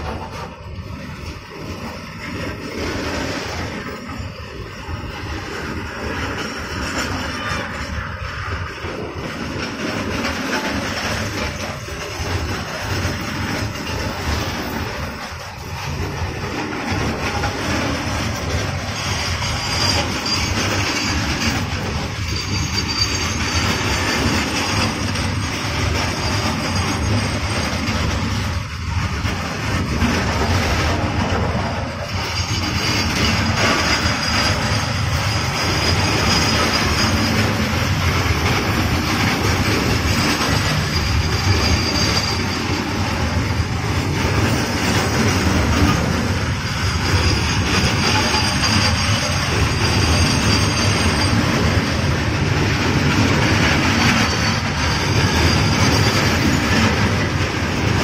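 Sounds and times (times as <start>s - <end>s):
freight train wagons rumbling: 0.0s - 58.0s
faint high squeal: 18.8s - 28.0s, 32.1s - 39.4s, 40.0s - 43.6s, 46.6s - 52.1s, 53.8s - 56.9s.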